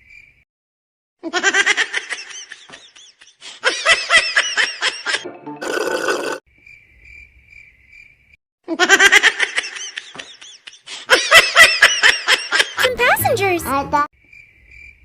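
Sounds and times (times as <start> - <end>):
high-pitched laughter: 1.2 - 5.2, 8.7 - 13.0
crickets chirping: 6.5 - 8.4.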